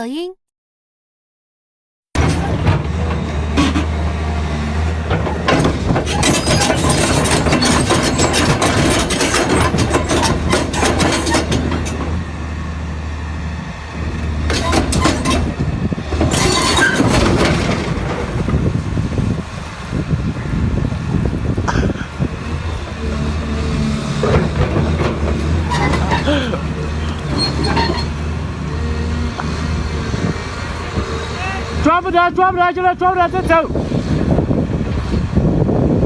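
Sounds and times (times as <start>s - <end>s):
diesel engine hum: 2.2s - 36.0s
metallic clanking and rattling: 5.0s - 12.2s, 14.4s - 18.5s, 24.2s - 28.3s.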